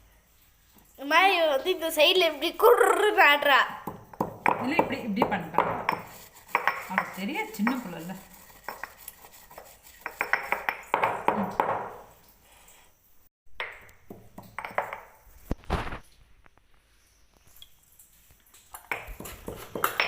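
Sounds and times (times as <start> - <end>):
grinding stone knocking on basin: 3.8 - 9.0, 10.0 - 12.0, 18.9 - 20.0.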